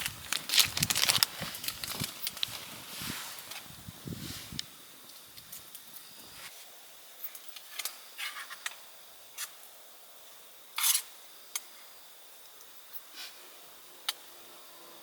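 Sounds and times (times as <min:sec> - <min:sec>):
short rustles: 0:00.0 - 0:04.6
faint steady hiss: 0:00.0 - 0:15.0.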